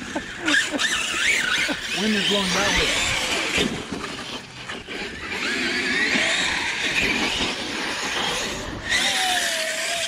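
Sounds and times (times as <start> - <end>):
rc truck motor whine: 0.0 - 10.0.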